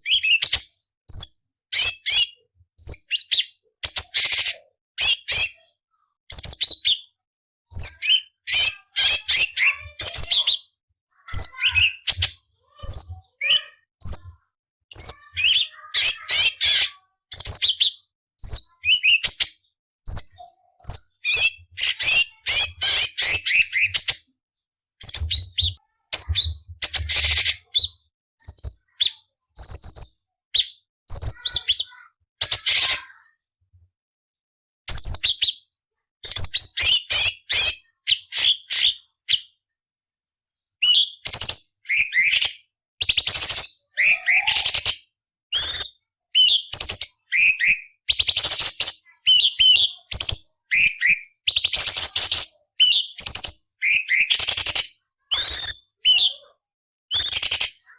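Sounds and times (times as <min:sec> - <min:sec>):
bird singing chirps and whistles: 0:00.0 - 0:05.6, 0:06.3 - 0:10.7, 0:11.3 - 0:14.3, 0:14.9 - 0:24.3, 0:25.0 - 0:32.8, 0:34.9 - 0:35.6, 0:36.2 - 0:39.6, 0:40.8 - 0:56.3, 0:57.1 - 0:57.9.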